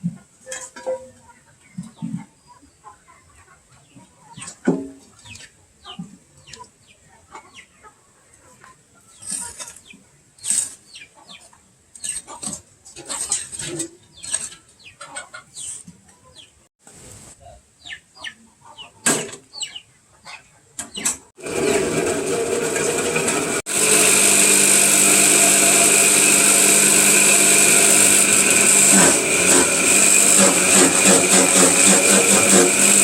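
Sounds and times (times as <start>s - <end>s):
chickens clucking: 0.0s - 16.6s, 17.3s - 21.3s
steady mechanical noise: 21.4s - 33.0s.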